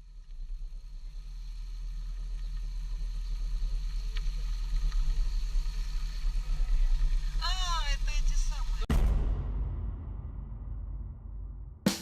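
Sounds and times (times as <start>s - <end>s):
faint clicks: 2.1s - 6.3s.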